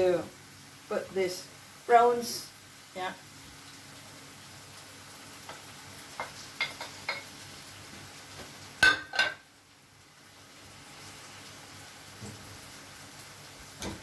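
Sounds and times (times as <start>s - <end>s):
faint sizzling: 0.0s - 14.0s
metal utensils clinking on a pan: 6.2s - 7.3s, 8.8s - 9.4s.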